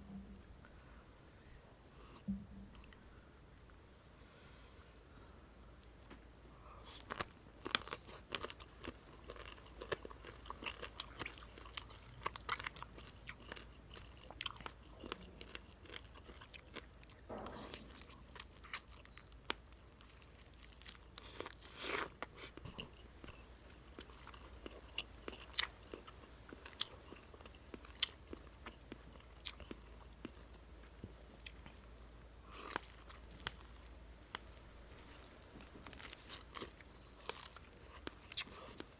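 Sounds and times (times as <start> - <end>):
crunchy chewing: 6.7 - 31.8, 32.4 - 38.9.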